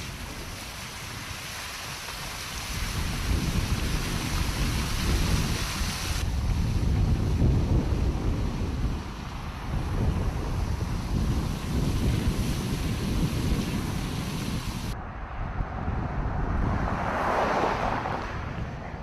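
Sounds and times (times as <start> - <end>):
rushing hiss: 0.0 - 6.2, 11.1 - 15.0
low rumbling gusts: 0.0 - 19.0
wind buffeting the microphone: 0.0 - 19.0.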